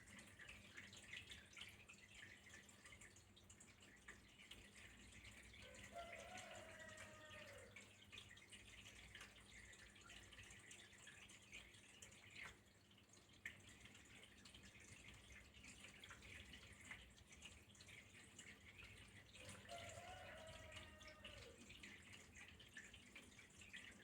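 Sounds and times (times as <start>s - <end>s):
trickle of running water: 0.0s - 24.0s
water drips: 0.0s - 24.0s.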